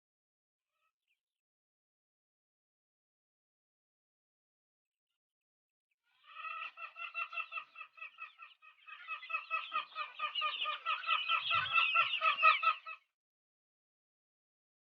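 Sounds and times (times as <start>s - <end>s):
chickens clucking: 6.2s - 13.1s.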